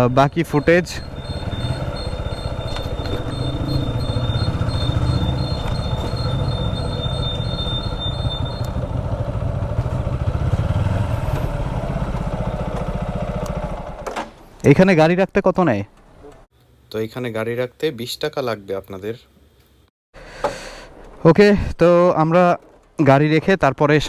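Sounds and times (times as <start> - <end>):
thin high-pitched tone: 0.0 - 8.8
motorcycle engine running: 0.4 - 14.0.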